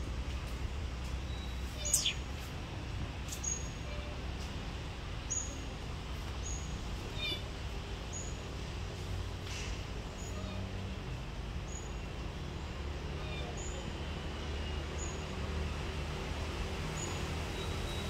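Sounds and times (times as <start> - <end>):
small birds chirping: 1.4 - 2.4.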